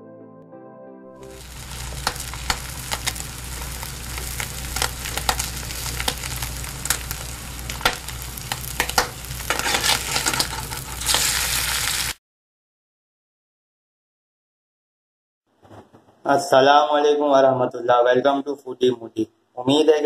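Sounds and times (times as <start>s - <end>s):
low hum: 1.2s - 11.1s
food deep-frying in oil: 1.2s - 12.2s.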